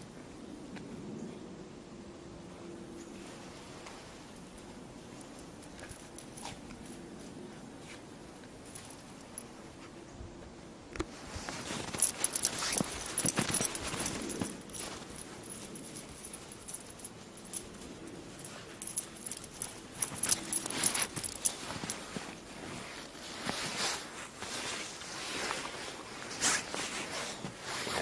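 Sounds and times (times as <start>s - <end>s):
footsteps crunching in snow: 11.1s - 28.0s.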